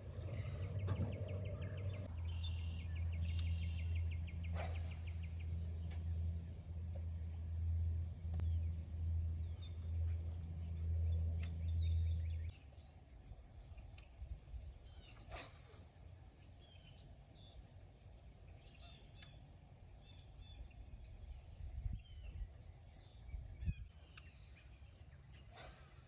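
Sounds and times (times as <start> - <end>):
songbirds chirping: 0.0 - 26.0
sharp swish: 4.5 - 5.4, 15.3 - 15.9, 25.5 - 26.0
wind rumble on microphone: 20.6 - 24.0.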